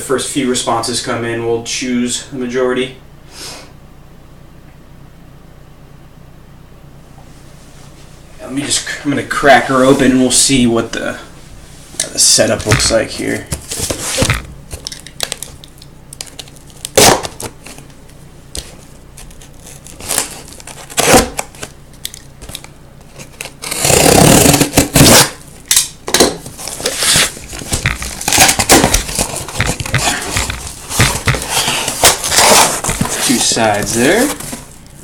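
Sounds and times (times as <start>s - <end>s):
crinkling and scraping: 7.6s - 35.0s
packaging tearing: 13.6s - 17.8s, 19.2s - 25.8s, 26.5s - 34.9s.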